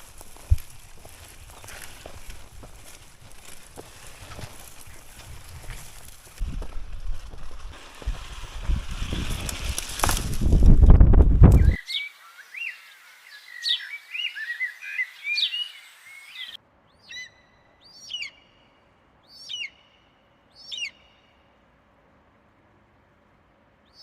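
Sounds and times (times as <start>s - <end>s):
birds singing: 0.4s - 2.9s, 11.6s - 21.4s
bird whistled calls: 11.6s - 18.7s, 19.3s - 20.0s, 20.6s - 21.3s.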